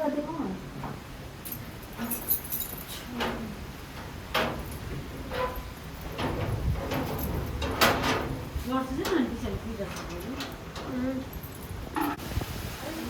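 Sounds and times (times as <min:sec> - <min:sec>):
house rattling knocks: 0:03.2 - 0:12.2
strong wind gusting: 0:03.4 - 0:13.0.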